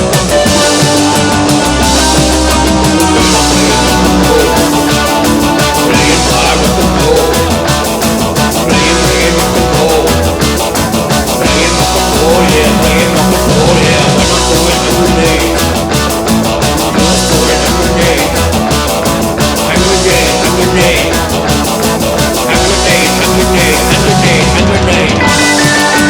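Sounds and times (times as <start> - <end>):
punk rock band playing: 0.0 - 26.0.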